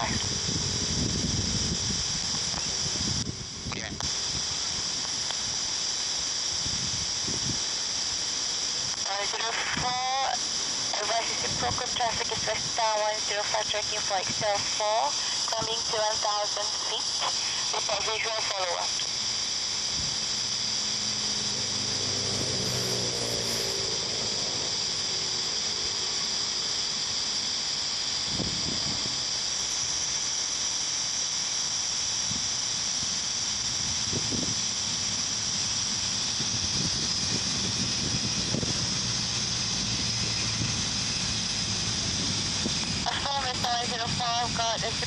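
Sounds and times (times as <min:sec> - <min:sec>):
jet engines whining: 0:00.0 - 0:06.4, 0:07.0 - 0:29.8.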